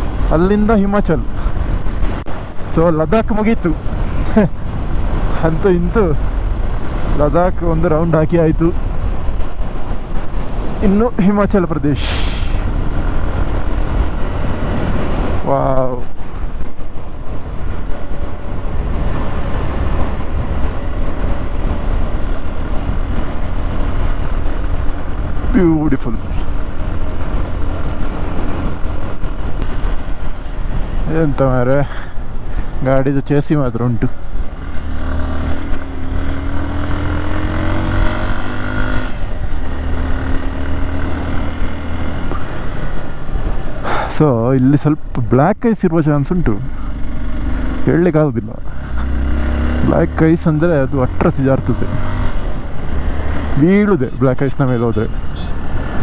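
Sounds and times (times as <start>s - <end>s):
wind rumble on microphone: 0.0s - 32.9s
rush of noise: 0.0s - 56.0s.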